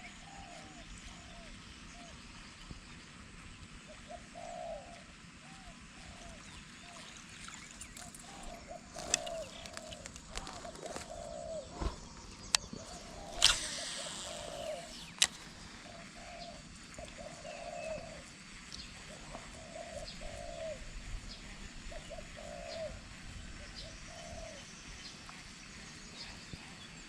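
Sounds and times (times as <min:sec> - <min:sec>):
dove cooing: 0:04.1 - 0:06.4, 0:08.1 - 0:12.0, 0:12.8 - 0:15.0, 0:15.7 - 0:18.3, 0:19.1 - 0:20.9, 0:21.9 - 0:24.6
sharp clicks: 0:13.3 - 0:15.5.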